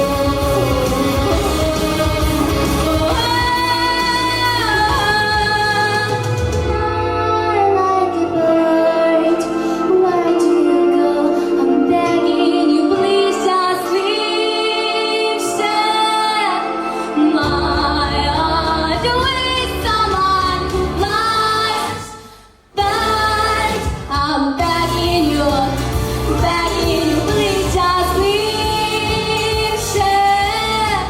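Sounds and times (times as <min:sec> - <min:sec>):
instrumental accompaniment: 0:00.0 - 0:21.7
woman singing: 0:00.0 - 0:22.2, 0:22.8 - 0:31.0.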